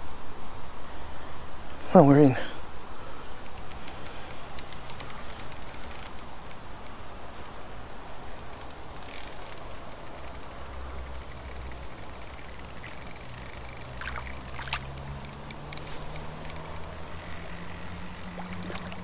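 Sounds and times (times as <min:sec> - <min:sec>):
fishing reel drag clicking: 0:03.4 - 0:07.6, 0:08.4 - 0:19.0
river rushing: 0:12.3 - 0:19.0.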